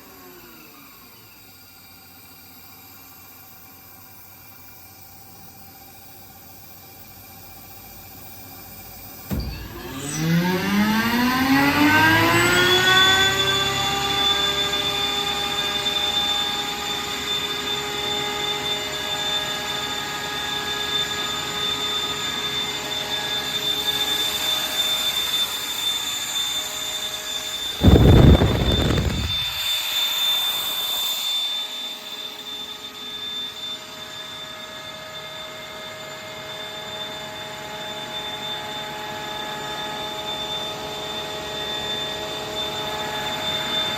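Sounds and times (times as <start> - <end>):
air compressor whine: 0.0 - 43.9
short loud rush of noise: 27.6 - 29.8.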